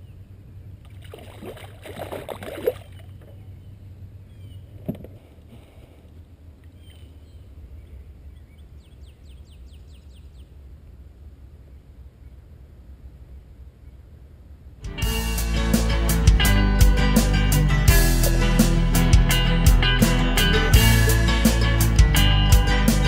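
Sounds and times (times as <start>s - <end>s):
steady low rumble: 0.0s - 1.0s, 10.4s - 23.0s
water sloshing and splashing: 0.8s - 3.5s.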